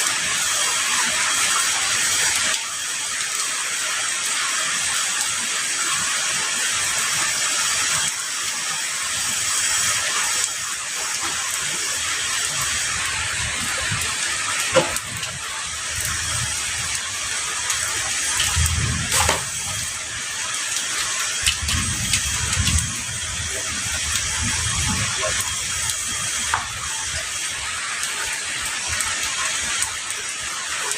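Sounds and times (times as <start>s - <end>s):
heavy rain falling: 0.0s - 30.9s
distant thunder rumbles: 21.4s - 25.6s.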